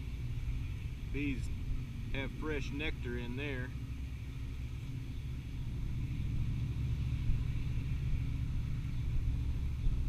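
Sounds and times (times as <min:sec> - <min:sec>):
wind buffeting the microphone: 0:04.1 - 0:10.0.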